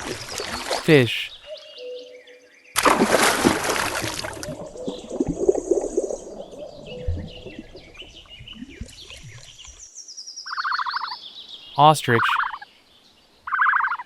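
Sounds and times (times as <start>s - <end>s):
fish splashing in water: 2.8s - 6.5s.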